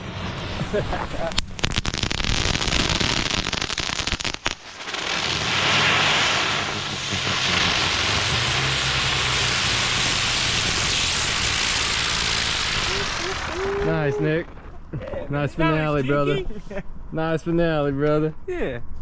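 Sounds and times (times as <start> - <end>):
fireworks hissing rush: 0.0 - 14.8
fireworks crackling and popping: 0.0 - 14.9
low hum: 5.1 - 17.8.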